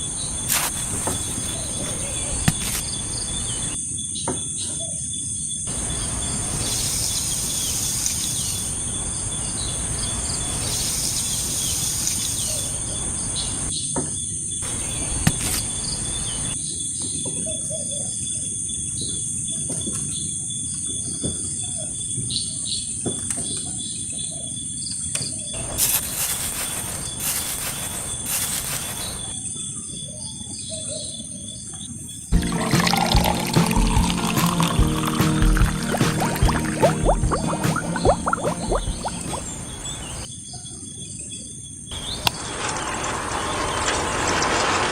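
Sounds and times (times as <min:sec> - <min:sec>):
bird chirps: 0:00.0 - 0:03.8, 0:05.7 - 0:13.7, 0:14.6 - 0:16.6, 0:25.5 - 0:29.4, 0:33.8 - 0:40.3
high insect drone: 0:05.7 - 0:13.7.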